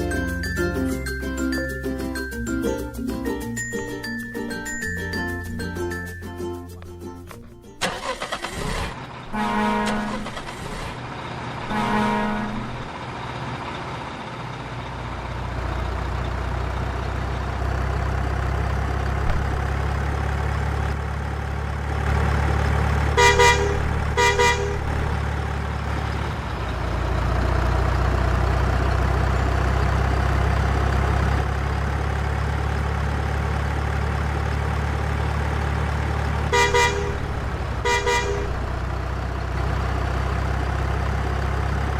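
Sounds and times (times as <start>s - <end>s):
truck engine low rumble: 0.0s - 41.9s
truck horn tooting: 7.8s - 11.0s, 11.6s - 13.0s, 23.1s - 25.5s, 36.4s - 39.1s.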